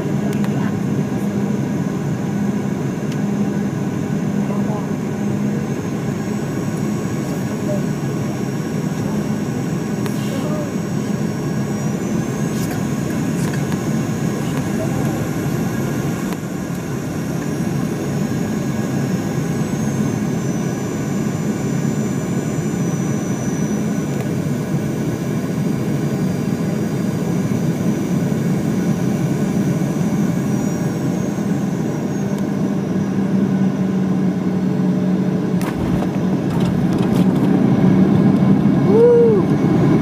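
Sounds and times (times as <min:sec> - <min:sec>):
airliner cabin drone: 0:00.0 - 0:40.0
high jet engine whine: 0:00.0 - 0:40.0
short thump: 0:35.6 - 0:37.1.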